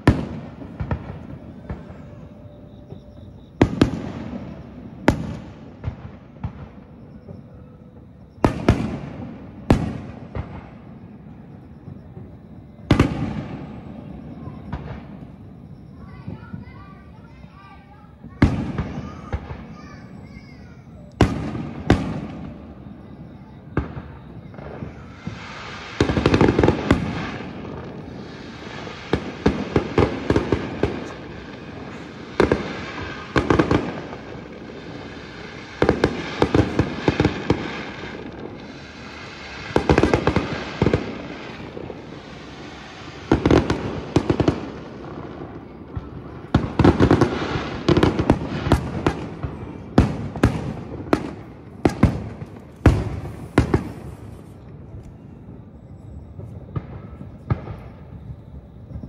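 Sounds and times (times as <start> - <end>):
fireworks bangs echoing: 0.0 - 59.0.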